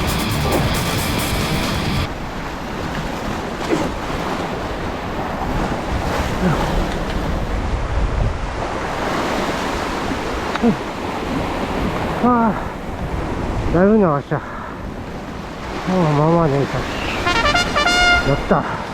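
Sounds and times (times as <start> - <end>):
background music: 0.0 - 2.1, 17.2 - 18.6
sea waves washing: 0.0 - 18.9
wind buffeting microphone: 2.1 - 17.4.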